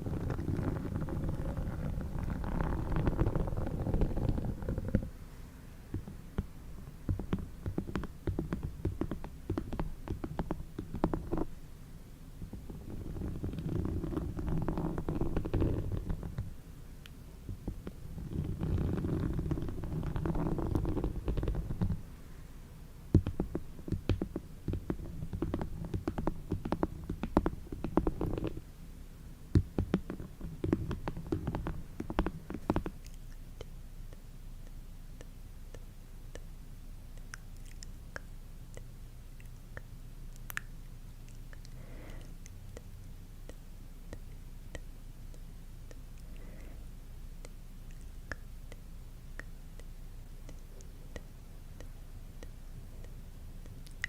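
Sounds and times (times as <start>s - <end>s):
soft clicks and crackles: 0.0s - 5.2s, 5.9s - 11.6s, 29.6s - 36.4s.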